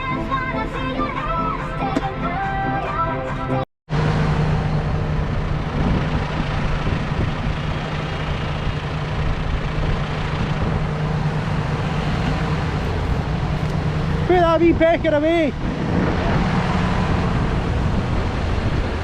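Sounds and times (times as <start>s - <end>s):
tractor engine droning: 3.9s - 19.0s.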